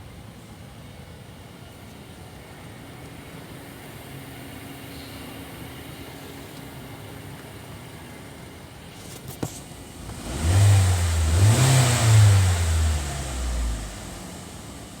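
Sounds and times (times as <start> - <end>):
car engine revving: 10.0 - 15.0.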